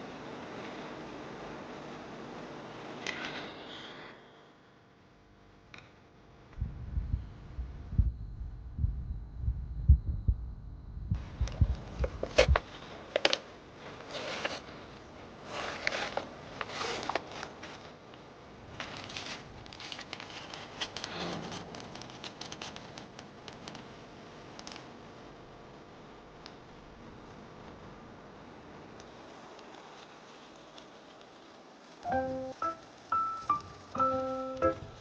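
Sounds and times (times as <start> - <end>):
rustling and crinkling: 11.2 - 24.0, 29.1 - 32.1.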